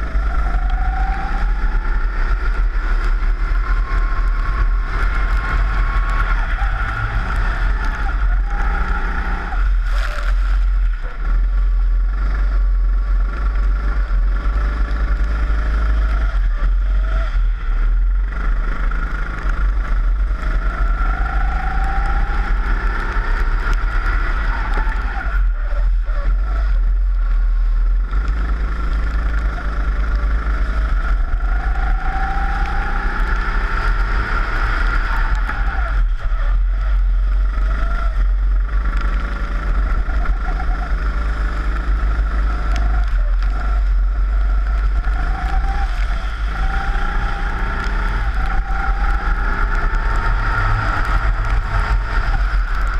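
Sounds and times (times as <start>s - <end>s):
kart engine accelerating: 0.0s - 52.9s.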